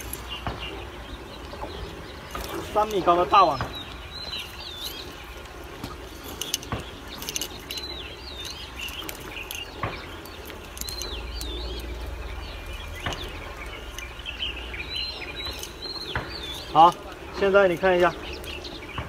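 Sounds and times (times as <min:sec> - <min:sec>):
low rumble: 0:09.3 - 0:17.4.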